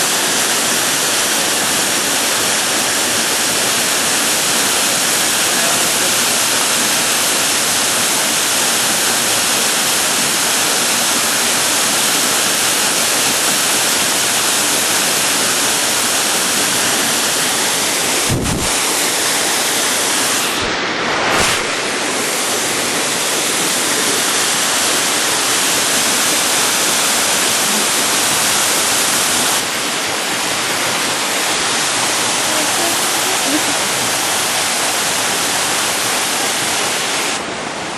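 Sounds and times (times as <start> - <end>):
waterfall pouring: 0.0 - 37.5
brief low thumps: 18.3 - 18.7.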